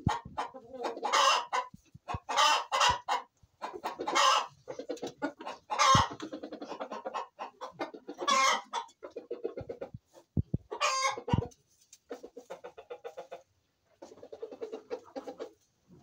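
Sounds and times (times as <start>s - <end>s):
loud harsh chicken calls: 0.0s - 8.9s, 10.7s - 11.5s
chickens clucking: 0.0s - 16.0s.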